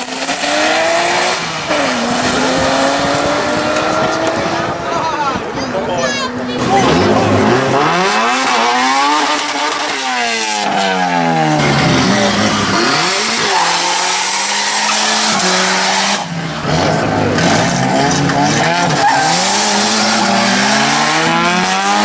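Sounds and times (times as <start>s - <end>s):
car engine revving: 0.0s - 22.0s
tyres spinning in a burnout: 0.0s - 22.0s.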